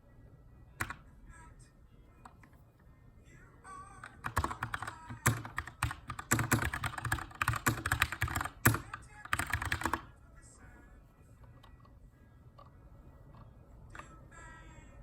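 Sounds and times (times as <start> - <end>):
mechanical keyboard typing: 4.0 - 10.1.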